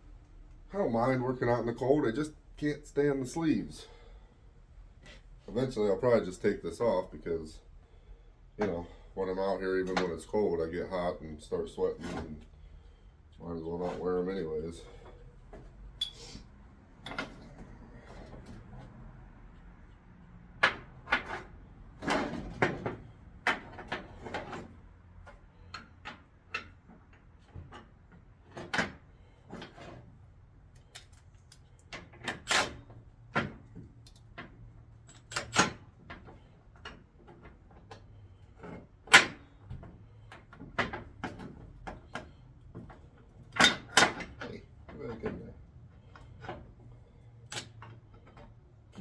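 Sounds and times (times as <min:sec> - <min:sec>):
hand tools clinking: 0:16.0 - 0:16.4.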